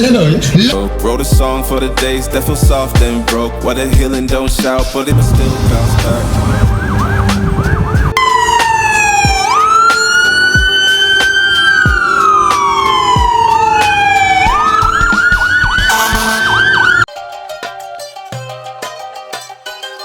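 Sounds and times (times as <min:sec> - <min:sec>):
music with steady beat: 0:00.5 - 0:16.4, 0:17.0 - 0:20.0
electronic siren yelp and wail: 0:06.1 - 0:17.1
plucked string music: 0:17.1 - 0:20.0.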